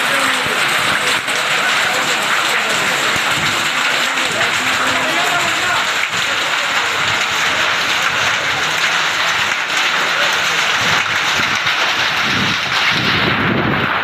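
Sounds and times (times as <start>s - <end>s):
hailstones pelting down: 0.0s - 14.0s.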